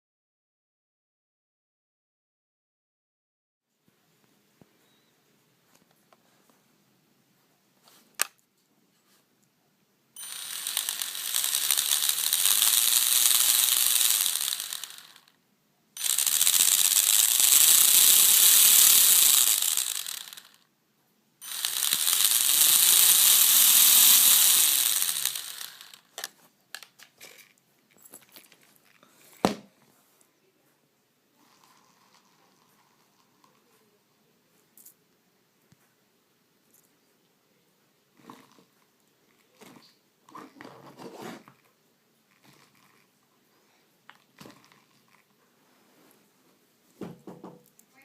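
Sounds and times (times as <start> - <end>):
electric motor whining: 10.2 - 15.3, 16.0 - 20.6, 21.4 - 26.1
gears ratcheting and grinding: 10.2 - 15.3, 16.0 - 20.6, 21.4 - 26.3.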